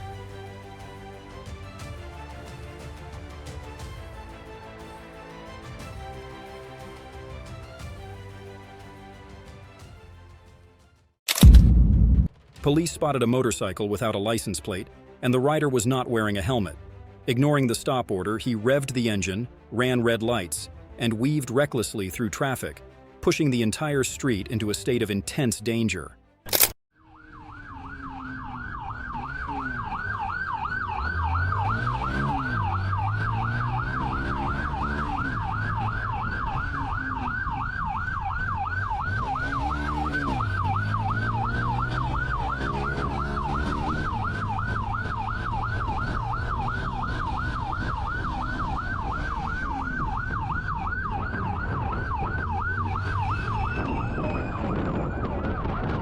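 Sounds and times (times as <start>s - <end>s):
police siren yelping: 27.0s - 56.0s
car engine accelerating: 27.3s - 56.0s.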